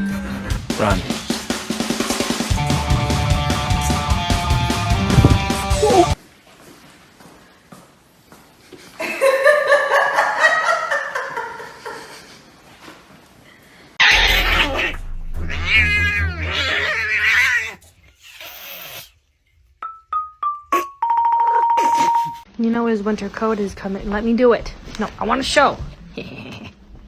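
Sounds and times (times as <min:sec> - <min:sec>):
cat yowling: 0:05.8 - 0:06.2, 0:14.0 - 0:19.1
low hum: 0:14.1 - 0:18.1.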